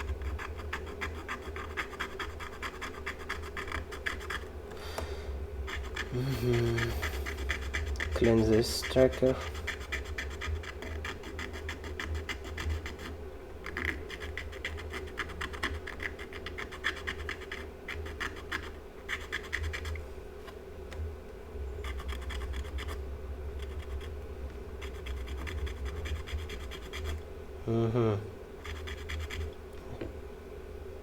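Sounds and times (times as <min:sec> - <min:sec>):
pencil scratching circuit board: 0:00.0 - 0:04.5, 0:05.6 - 0:20.0, 0:21.8 - 0:23.0, 0:23.6 - 0:24.1, 0:24.8 - 0:27.2, 0:28.6 - 0:29.5
steady low hum: 0:00.0 - 0:31.0.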